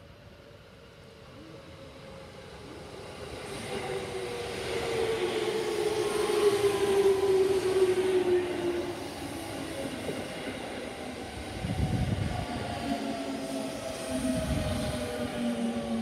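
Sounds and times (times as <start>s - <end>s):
electric train arriving: 0.0s - 16.0s
train drive whine: 0.1s - 16.0s.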